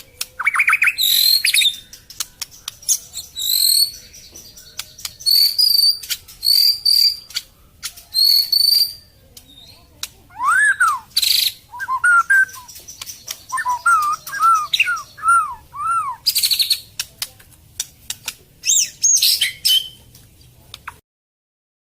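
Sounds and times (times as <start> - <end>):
bird clicks: 0.0 - 3.0, 12.3 - 15.0, 16.3 - 18.8, 20.1 - 21.0
bird singing varied song: 0.0 - 21.0.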